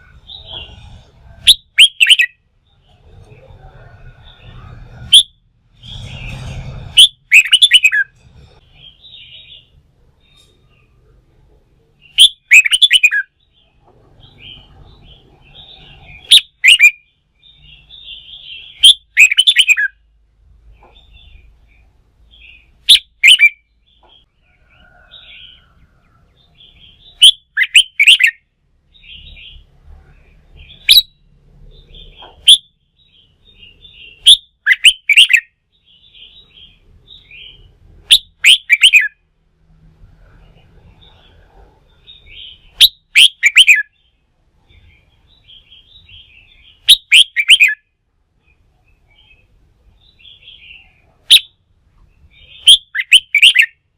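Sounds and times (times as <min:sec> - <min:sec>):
soft bird twittering: 0:00.0 - 0:11.1, 0:12.0 - 0:20.0, 0:40.3 - 0:53.8.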